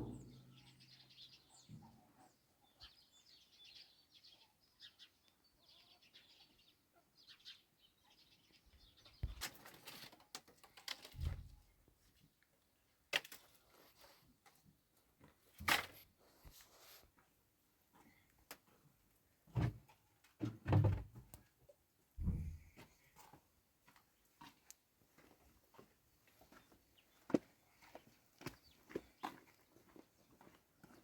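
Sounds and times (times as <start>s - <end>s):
loud thumps: 0.0s - 0.6s.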